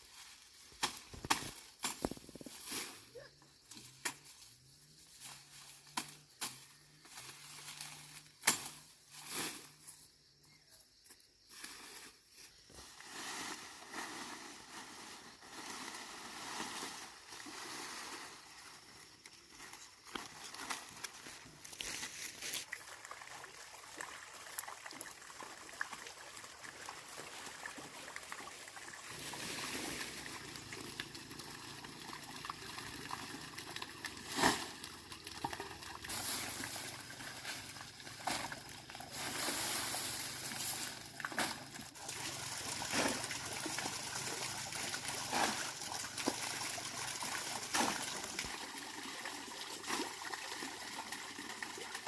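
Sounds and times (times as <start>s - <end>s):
water trickling and splashing: 13.0s - 52.0s.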